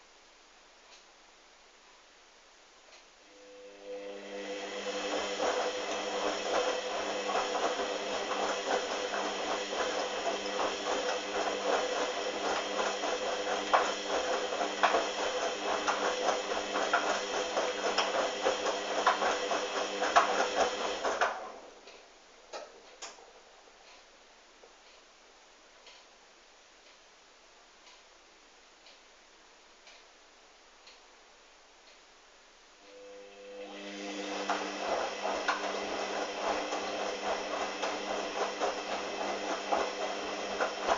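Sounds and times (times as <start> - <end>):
washing machine drum turning: 4.7 - 21.6, 34.1 - 40.9.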